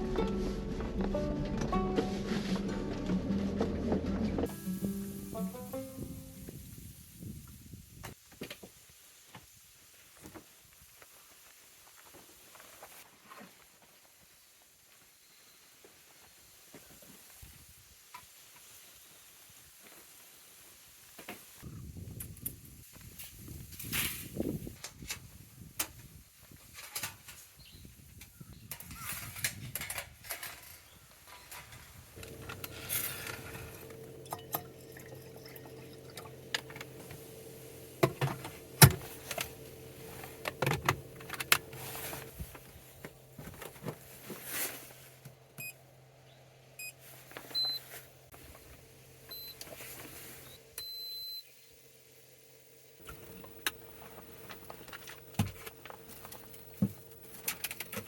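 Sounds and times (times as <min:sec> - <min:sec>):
low hum: 0:32.2 - 0:44.2.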